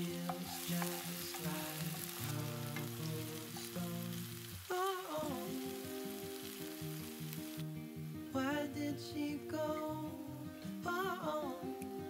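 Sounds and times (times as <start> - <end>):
wooden spatula stirring: 0.0 - 4.0
pop song playing: 0.0 - 6.8, 8.2 - 12.0
onions sizzling in oil: 0.0 - 8.6.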